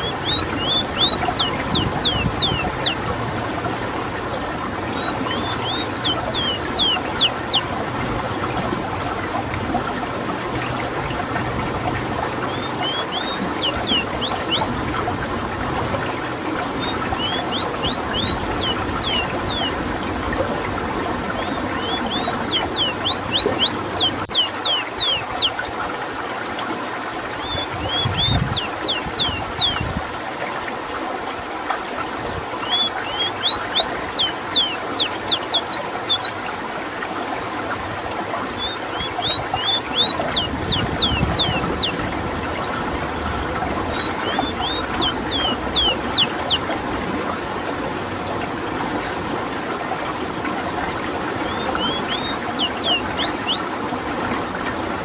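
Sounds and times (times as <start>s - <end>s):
bird singing whistled notes: 0.0s - 3.0s, 5.0s - 7.7s, 12.4s - 14.7s, 16.8s - 19.8s, 21.4s - 25.6s, 27.4s - 29.8s, 32.6s - 36.4s, 38.6s - 42.0s, 43.9s - 46.6s, 51.4s - 53.7s.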